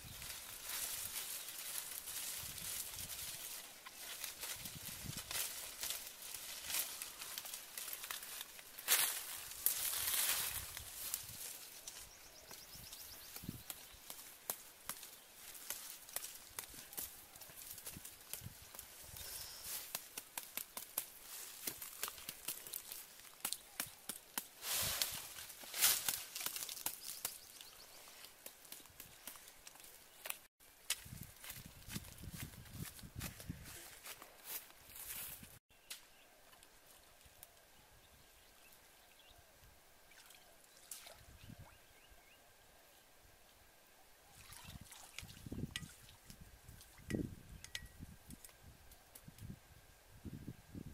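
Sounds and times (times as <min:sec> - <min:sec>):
dry leaves crackling underfoot: 0:00.0 - 0:37.6
leaves rustling: 0:00.0 - 0:37.7.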